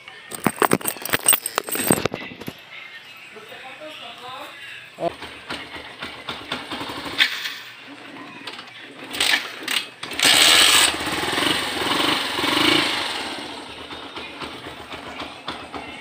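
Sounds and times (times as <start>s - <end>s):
motorcycle engine revving: 9.0s - 16.0s.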